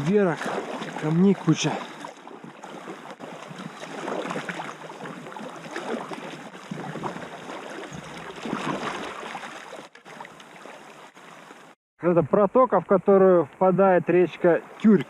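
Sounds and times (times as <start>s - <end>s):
river water rushing over stones: 0.0s - 11.7s.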